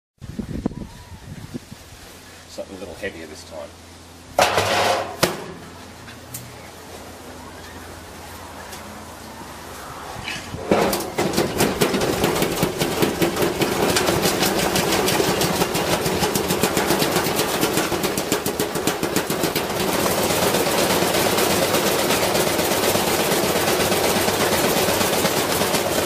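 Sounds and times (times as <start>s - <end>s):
object banging against drum: 4.4s - 5.6s
washing machine spinning: 10.6s - 26.0s.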